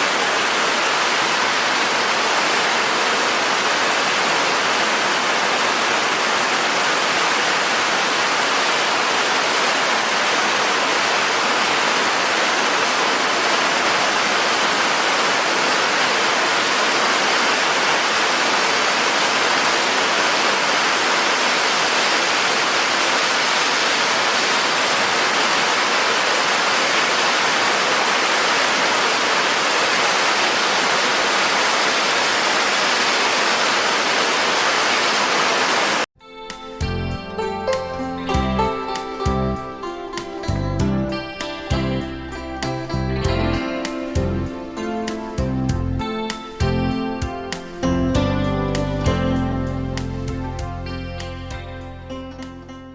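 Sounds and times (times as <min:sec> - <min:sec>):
heavy rain pouring: 0:00.0 - 0:36.1.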